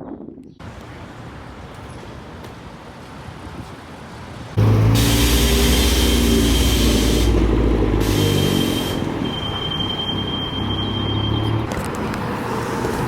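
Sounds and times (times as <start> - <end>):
outdoor background noise: 0.0 - 13.0
train running close by: 4.6 - 11.4.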